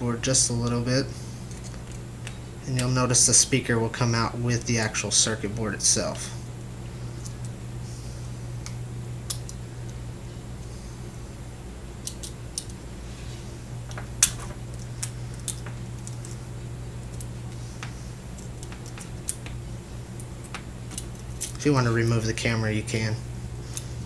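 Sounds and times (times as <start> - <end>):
steady low hum: 0.0 - 24.0
small clicks and taps: 17.1 - 19.6.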